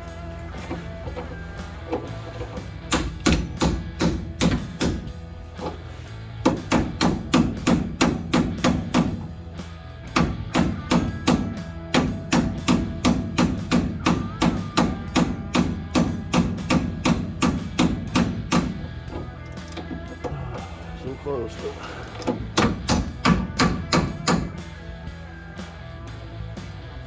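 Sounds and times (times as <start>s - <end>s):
background music: 0.0s - 27.0s
hammer blows on metal: 10.1s - 18.8s, 22.2s - 24.7s.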